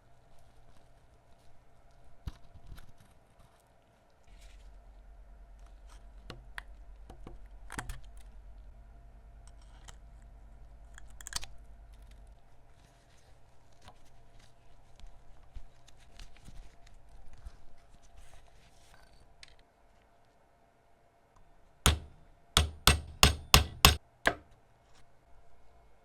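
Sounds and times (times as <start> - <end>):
low steady hum: 4.3 - 13.0, 21.9 - 24.5.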